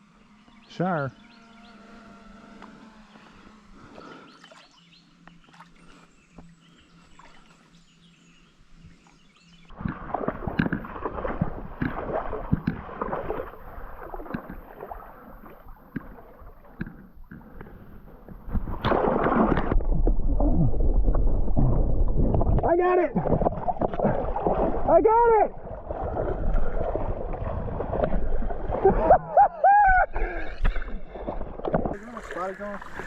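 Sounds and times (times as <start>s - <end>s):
water splashing as person wades: 9.7s - 24.9s, 25.5s - 29.3s, 30.0s - 33.0s
low rumble: 19.7s - 24.9s.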